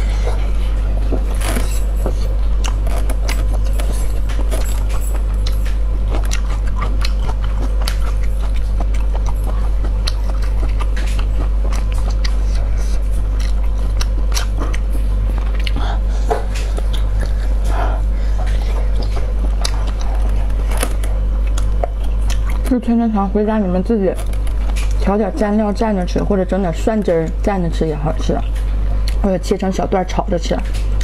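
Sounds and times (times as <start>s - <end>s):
person chewing with mouth clicks: 0.0s - 22.7s, 28.2s - 29.2s
low hum: 0.0s - 31.0s.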